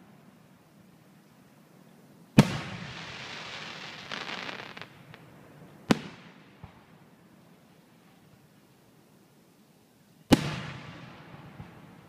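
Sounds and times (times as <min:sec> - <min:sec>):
crackling hiss: 0:00.0 - 0:12.0.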